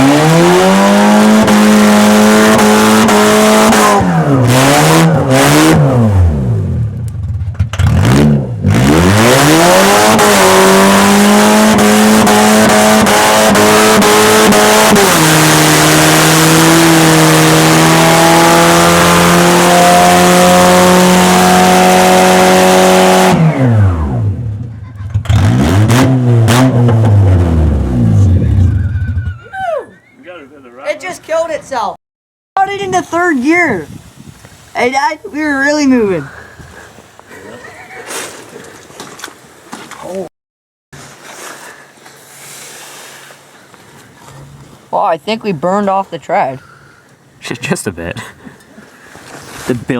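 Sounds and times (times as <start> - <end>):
car engine revving: 0.0 - 29.1.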